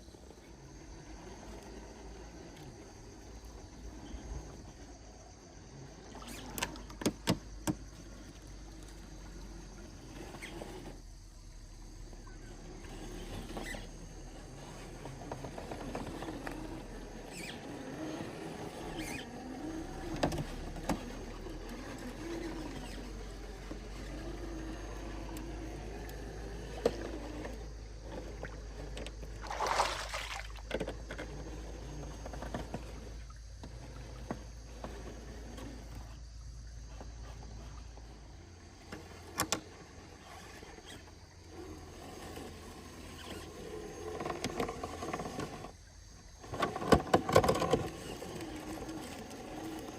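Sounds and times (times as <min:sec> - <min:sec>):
toy truck motor whining: 0:12.6 - 0:29.0.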